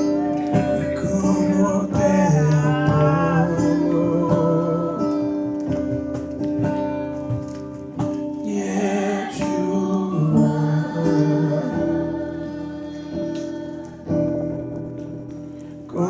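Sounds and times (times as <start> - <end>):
guitar chords: 0.0 - 16.0
person singing wordless notes: 8.4 - 15.0.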